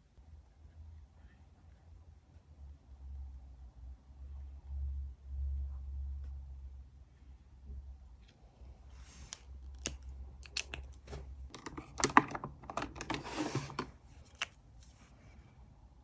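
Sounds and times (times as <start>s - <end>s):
small clicks and taps: 9.3s - 13.2s.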